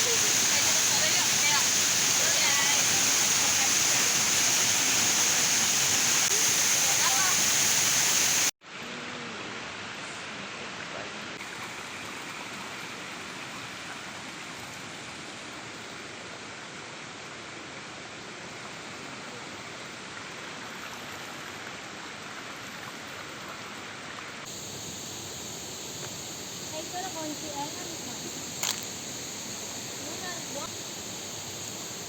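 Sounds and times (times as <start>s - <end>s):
river water rushing: 0.0s - 8.5s.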